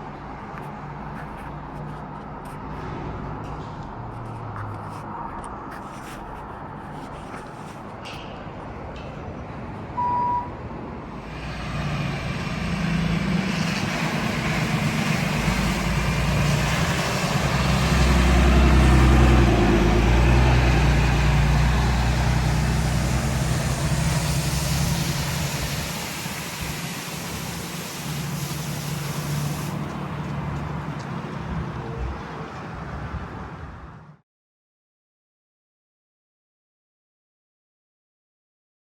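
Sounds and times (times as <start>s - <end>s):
diesel truck driving by: 9.6s - 34.2s
short beep: 10.0s - 10.6s.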